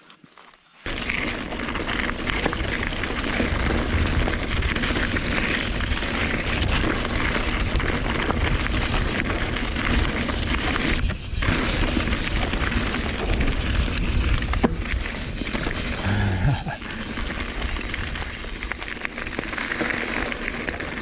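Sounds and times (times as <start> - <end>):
wind buffeting microphone: 2.6 - 18.8.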